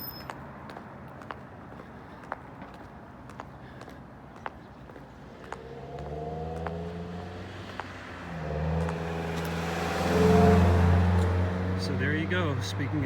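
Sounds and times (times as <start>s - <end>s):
car engine: 5.8s - 13.0s.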